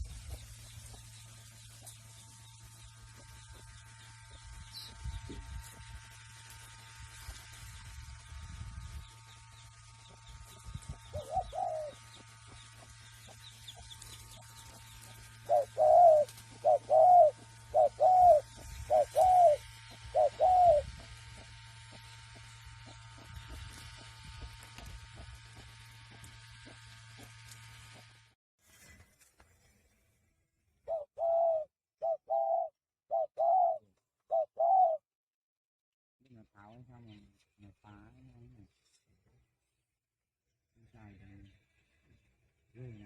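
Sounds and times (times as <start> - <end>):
dove cooing: 11.0 - 12.4, 14.8 - 21.6, 30.9 - 35.0.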